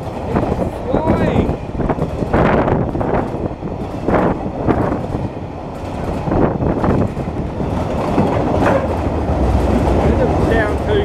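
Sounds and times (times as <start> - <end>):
freight wagons rumbling past: 0.0 - 11.0
wheel clacks over rail joints: 4.9 - 11.0.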